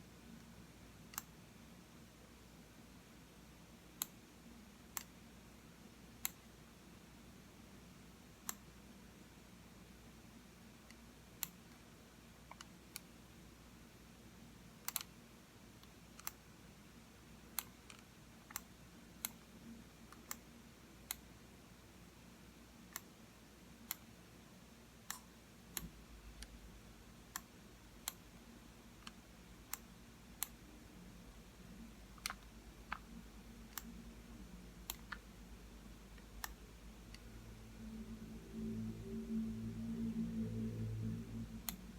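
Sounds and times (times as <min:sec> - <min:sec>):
mouse buttons clicking: 0:32.1 - 0:34.0, 0:34.8 - 0:35.3, 0:36.2 - 0:37.3.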